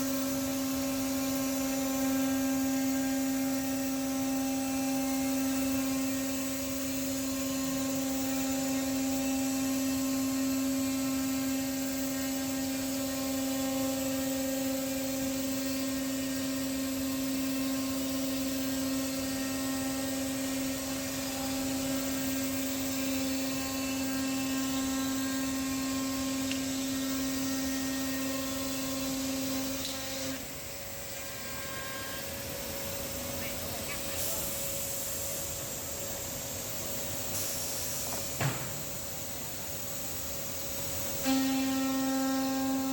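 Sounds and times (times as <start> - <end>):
machine spindle whining: 0.0 - 42.9
hiss of noise: 37.2 - 38.9.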